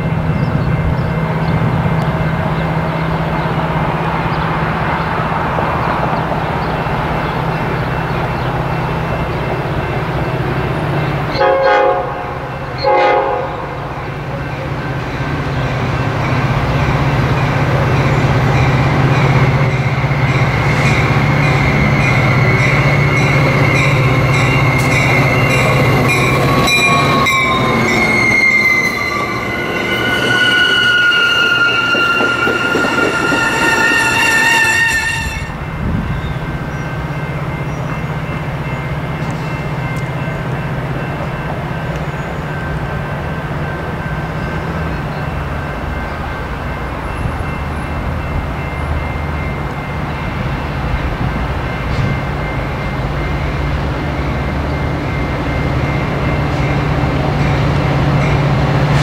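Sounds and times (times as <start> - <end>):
train horn blasts: 11.3 - 13.9, 24.3 - 35.8
train wheels squealing: 18.6 - 37.0.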